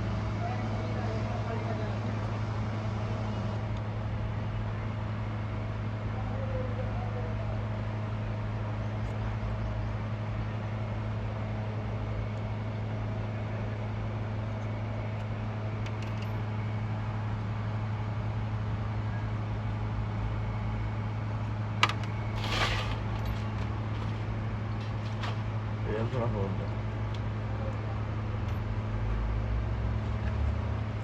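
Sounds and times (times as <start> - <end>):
low mechanical hum: 0.0 - 31.0
rustling scrape: 22.3 - 25.5.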